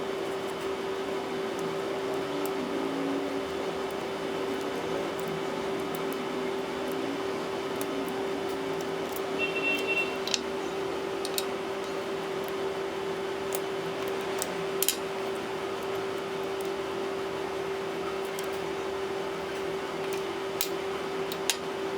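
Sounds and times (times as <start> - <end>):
steady hum: 0.0 - 21.9
clicks and taps of hand tools: 13.5 - 15.0.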